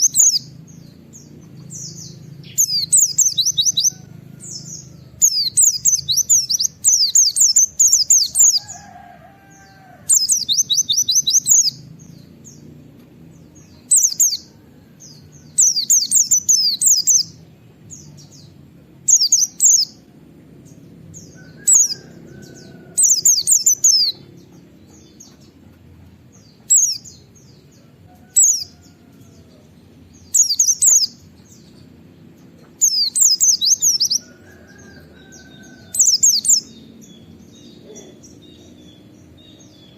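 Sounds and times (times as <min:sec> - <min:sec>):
bird high-pitched chattering song: 0:00.0 - 0:01.0, 0:01.7 - 0:08.7, 0:10.1 - 0:12.2, 0:13.6 - 0:14.5, 0:15.6 - 0:17.4, 0:19.1 - 0:20.0, 0:21.3 - 0:25.7, 0:26.5 - 0:27.4, 0:28.4 - 0:28.8, 0:30.2 - 0:31.8, 0:32.6 - 0:36.8.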